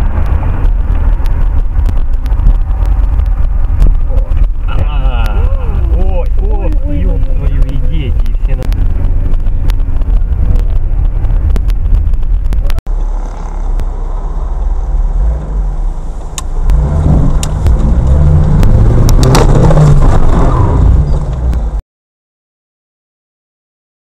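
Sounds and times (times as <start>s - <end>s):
car engine: 0.0s - 21.8s
road noise: 0.0s - 21.8s.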